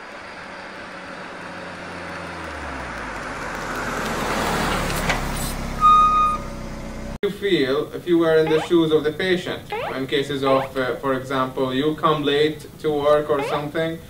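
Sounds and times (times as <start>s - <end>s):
short high beep: 8.5s - 8.8s, 9.7s - 10.8s, 13.4s - 13.6s.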